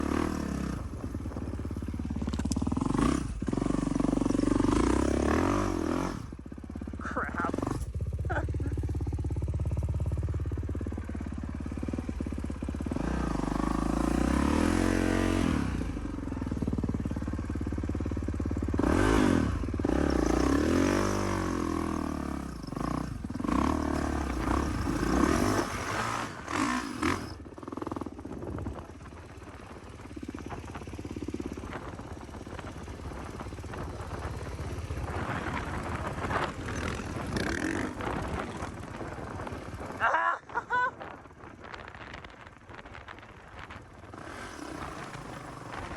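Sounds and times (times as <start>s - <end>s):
dirt bike engines revving: 0.0s - 10.2s, 11.3s - 17.4s, 18.6s - 45.9s.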